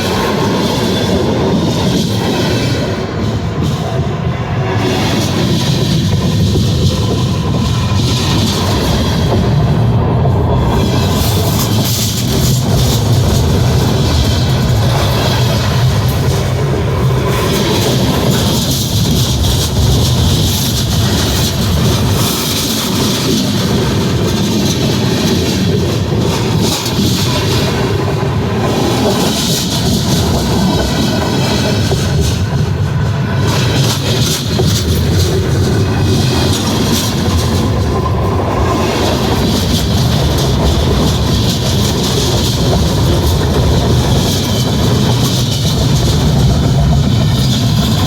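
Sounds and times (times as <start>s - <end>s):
freight train rolling past: 0.0s - 48.0s
wheels clicking on rails: 0.0s - 48.0s.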